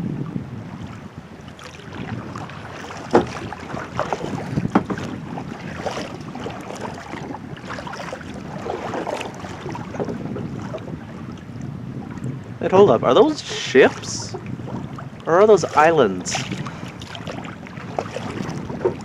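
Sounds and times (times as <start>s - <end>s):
wind noise on microphone: 0.0s - 19.0s
paddle splashing and dripping water: 0.6s - 12.6s, 13.2s - 19.0s
sharp splashes or knocks: 1.6s - 10.9s, 13.8s - 19.0s.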